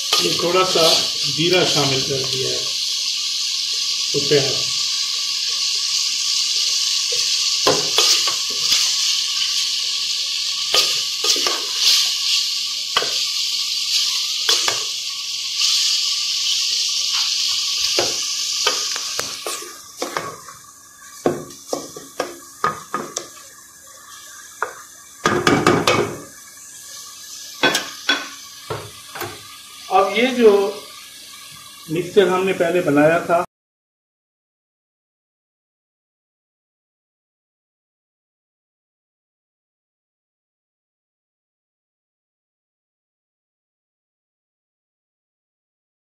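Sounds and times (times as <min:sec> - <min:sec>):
food sizzling in a pot: 0:00.0 - 0:33.5.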